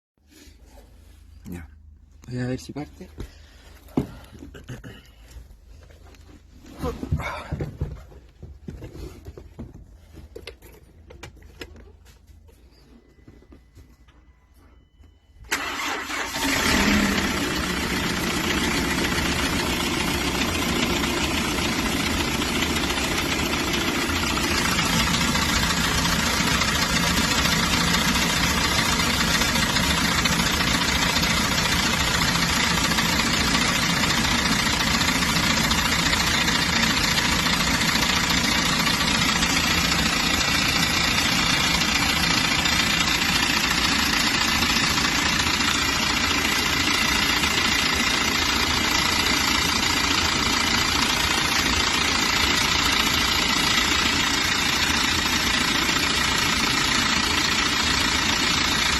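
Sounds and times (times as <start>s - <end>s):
diesel engine starting and idling: 14.0s - 58.9s.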